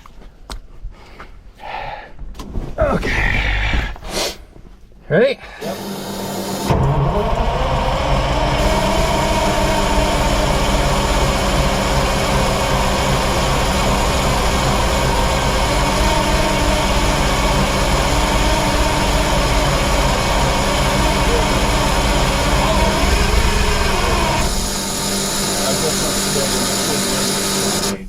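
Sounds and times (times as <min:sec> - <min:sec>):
diesel engine cranking with whine: 0:05.6 - 0:28.0.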